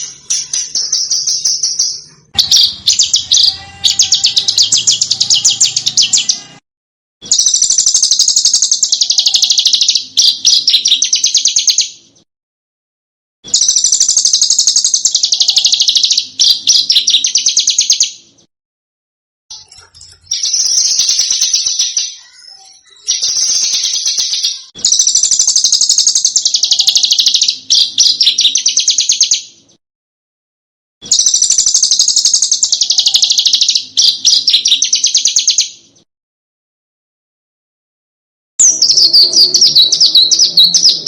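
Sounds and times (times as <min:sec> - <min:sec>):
songbird chattering trills: 0:00.0 - 0:06.5, 0:38.6 - 0:41.0.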